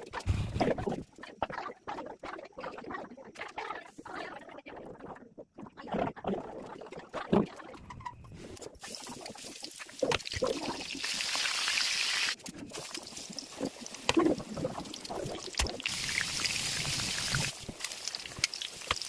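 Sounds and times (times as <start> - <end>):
chicken frying in hot oil: 8.8 - 19.0.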